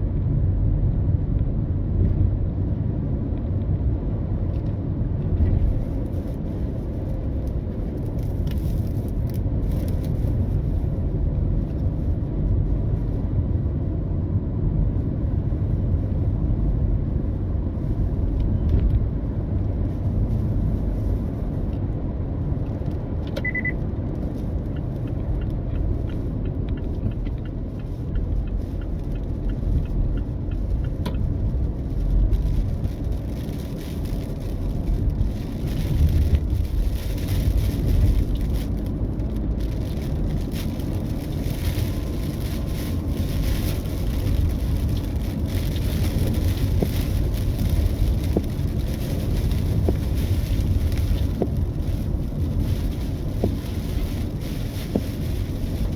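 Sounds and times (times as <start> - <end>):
car road and engine rumble: 0.0 - 55.9
short high beep: 23.4 - 23.8.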